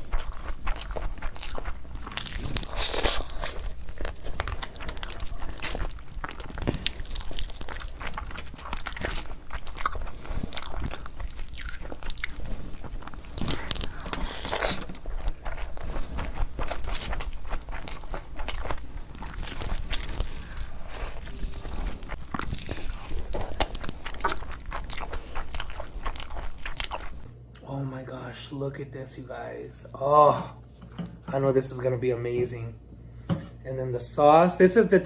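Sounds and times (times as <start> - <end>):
person chewing crunchy food: 0.0 - 27.3.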